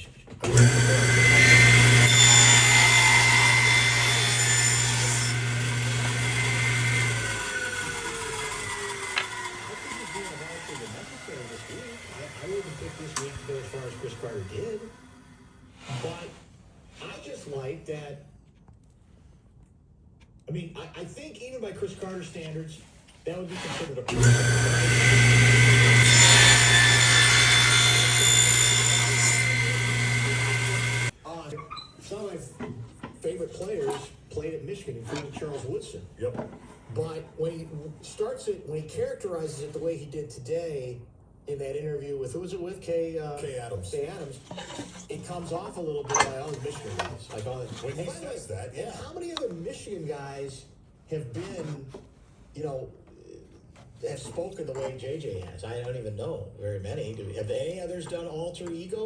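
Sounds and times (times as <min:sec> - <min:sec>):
power tool whining: 0:00.4 - 0:16.3, 0:23.6 - 0:32.2, 0:44.4 - 0:48.1.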